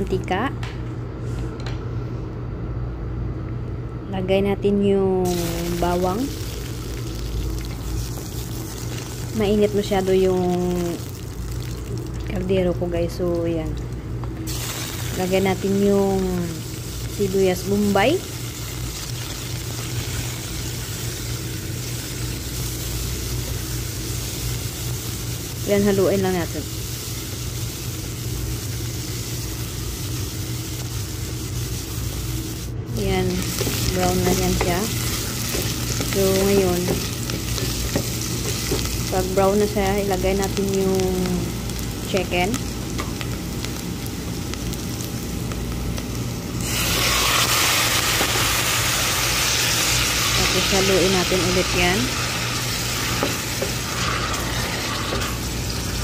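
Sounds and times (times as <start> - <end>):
steady low hum: 0.0 - 56.0
onions sizzling in hot oil: 5.2 - 13.2, 14.4 - 56.0
meat hissing in hot oil: 14.5 - 42.9, 46.6 - 56.0
person talking: 32.9 - 35.0, 36.1 - 37.0.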